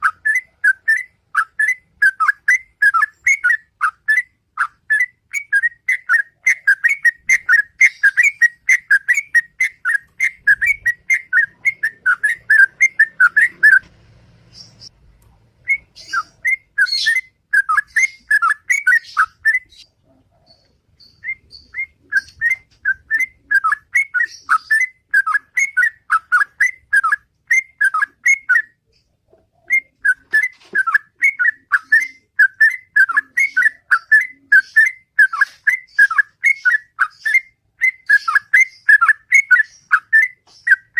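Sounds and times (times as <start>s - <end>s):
bird singing bubbly whistles: 4.9s - 13.8s, 15.7s - 19.8s, 21.0s - 28.8s.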